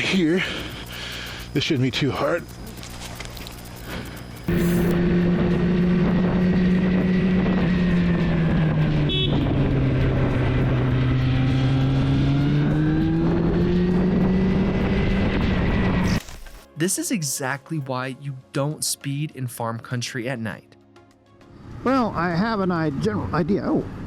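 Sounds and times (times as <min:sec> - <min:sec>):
motorcycle engine running: 0:00.0 - 0:16.1.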